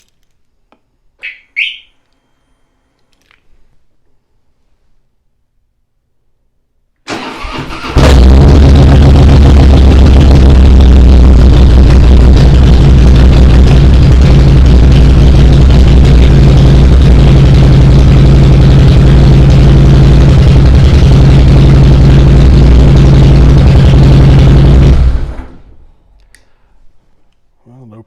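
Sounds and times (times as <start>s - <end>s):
motorcycle engine idling: 8.7s - 24.9s.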